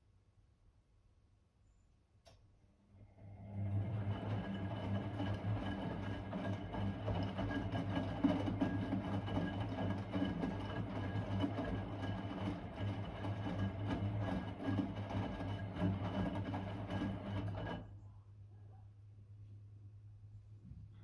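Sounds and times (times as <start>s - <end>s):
washing machine motor hum: 3.0s - 18.0s.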